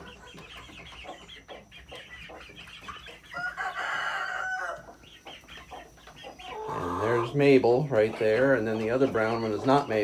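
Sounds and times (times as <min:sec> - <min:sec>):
chickens clucking: 0:00.0 - 0:10.0
rooster crowing: 0:03.3 - 0:04.8.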